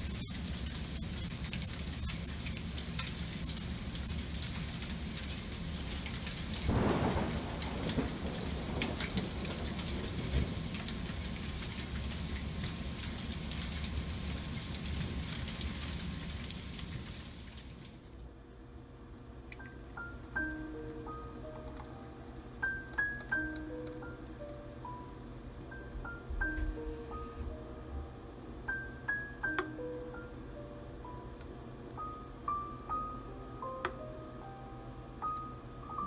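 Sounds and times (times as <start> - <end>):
freezing rain hissing: 0.0 - 18.2, 26.8 - 27.6
rush of rain: 0.0 - 18.2.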